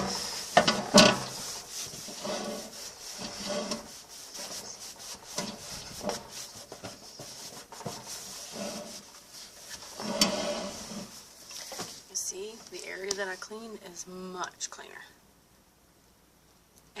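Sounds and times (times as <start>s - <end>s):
rag wiping inside microwave: 0.0s - 12.6s.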